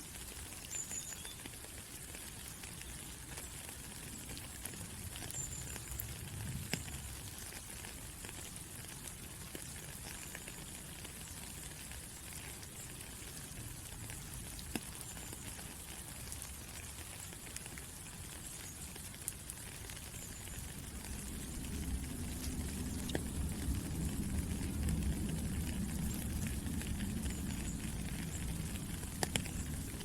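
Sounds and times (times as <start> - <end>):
raindrop ticks: 0.0 - 30.0
steady rain hiss: 0.0 - 30.0
low rumble: 20.8 - 30.0.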